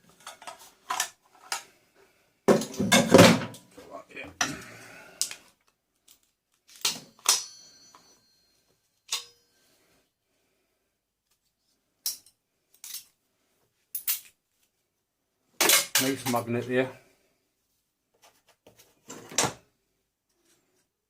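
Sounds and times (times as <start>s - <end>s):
metallic clinks and knocks: 6.7s - 9.6s.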